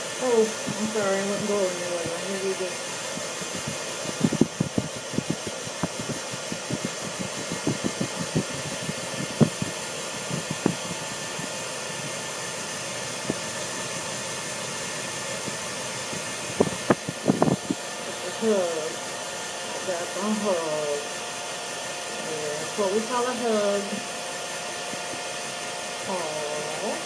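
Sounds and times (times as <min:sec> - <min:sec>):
hair dryer blowing: 0:00.0 - 0:27.0.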